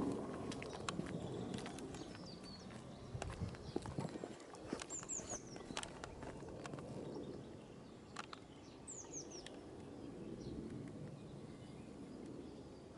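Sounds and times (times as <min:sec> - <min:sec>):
high falling bird chirps: 0:04.9 - 0:10.7
light clicks: 0:08.1 - 0:08.5.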